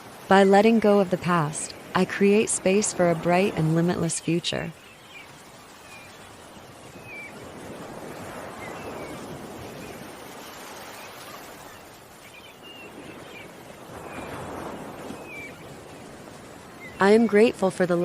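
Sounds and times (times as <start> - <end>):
ocean waves washing on shore: 0.0 - 18.0.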